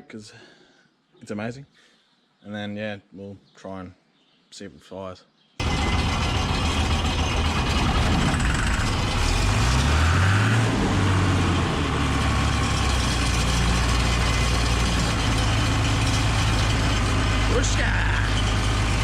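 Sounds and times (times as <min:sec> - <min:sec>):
diesel engine starting: 0:05.6 - 0:19.0.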